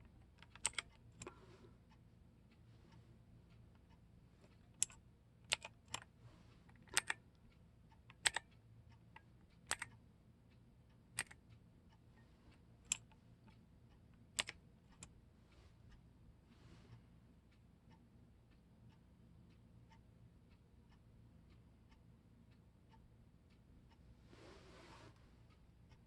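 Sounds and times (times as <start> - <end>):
mechanical keyboard key clicks: 0.5 - 1.3, 6.8 - 7.2, 8.1 - 8.4, 11.2 - 11.4.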